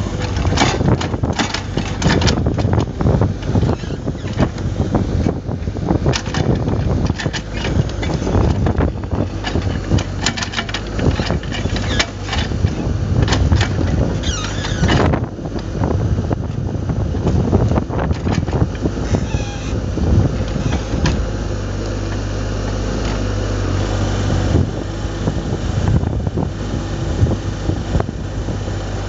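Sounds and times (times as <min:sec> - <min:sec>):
diesel engine running: 0:00.0 - 0:29.0
wavering squeal: 0:19.0 - 0:19.8.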